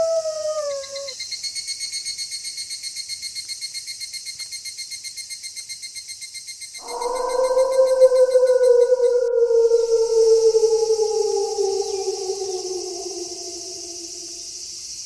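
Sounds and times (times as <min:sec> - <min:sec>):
wolf howling: 0:00.0 - 0:01.2, 0:06.8 - 0:14.8
night insects chirping: 0:00.0 - 0:01.4, 0:06.8 - 0:15.0.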